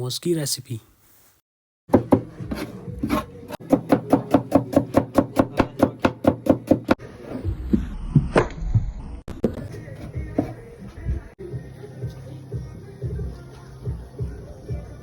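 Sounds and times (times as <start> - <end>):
knife chopping on wooden board: 1.9 - 7.0.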